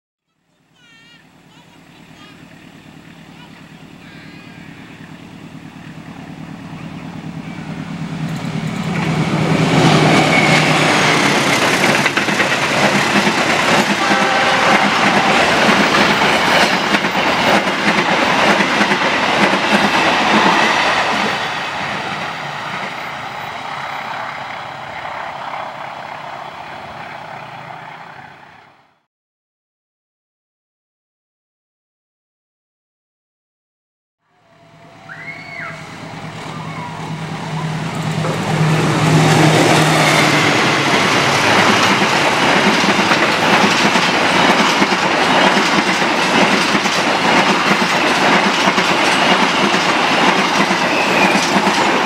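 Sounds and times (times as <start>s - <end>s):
locomotive engine hum: 0.8s - 28.8s, 34.4s - 52.0s
wheels clattering over rail joints: 2.1s - 23.4s, 37.9s - 52.0s.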